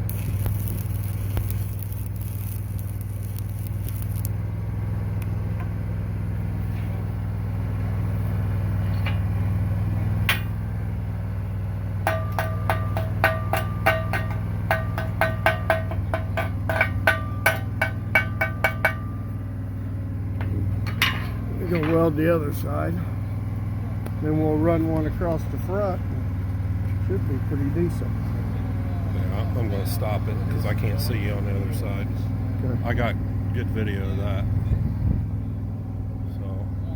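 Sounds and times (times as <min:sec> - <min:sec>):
welding arc crackling: 0:00.0 - 0:05.4
engine running steadily: 0:00.0 - 0:36.9
chipping hammer striking metal: 0:10.3 - 0:10.6, 0:12.0 - 0:19.2.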